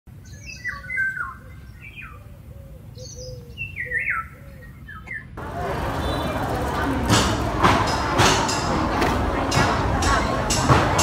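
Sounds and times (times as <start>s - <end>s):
birds chirping and calling: 0.1s - 6.9s
loud steady noise: 5.4s - 11.0s.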